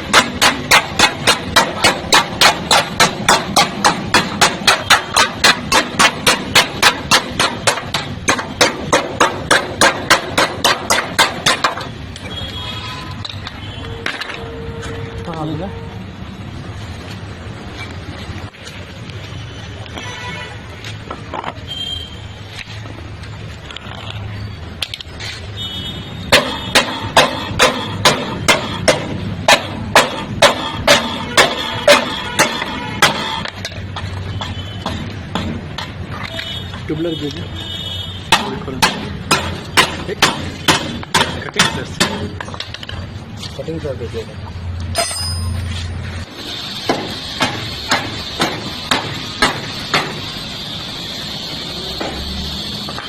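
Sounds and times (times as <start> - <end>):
hammer beating sheet metal: 0.0 - 12.0, 26.3 - 33.5, 38.3 - 42.4, 46.8 - 50.4.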